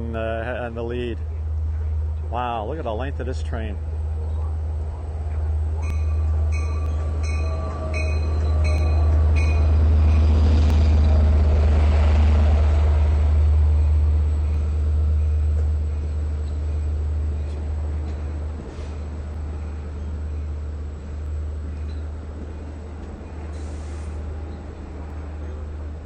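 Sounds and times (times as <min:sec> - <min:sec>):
locomotive engine rumble: 0:00.0 - 0:26.0
train wheel noise: 0:00.0 - 0:26.0
bell ringing: 0:05.8 - 0:10.2.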